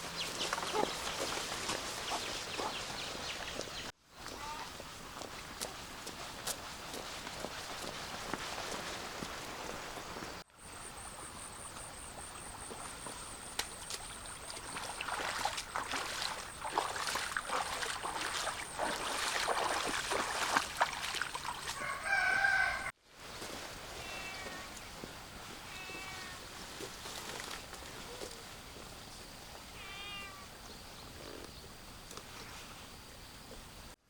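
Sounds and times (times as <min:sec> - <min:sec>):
rooster crowing: 0:21.7 - 0:23.0.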